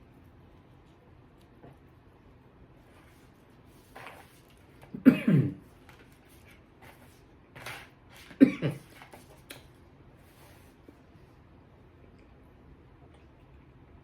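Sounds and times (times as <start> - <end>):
man coughing: 4.9 - 5.6, 8.4 - 8.9.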